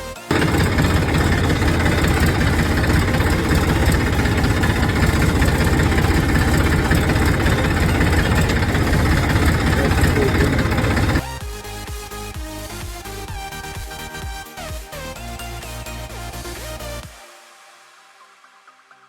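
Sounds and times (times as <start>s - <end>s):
tractor engine idling: 0.3s - 11.2s.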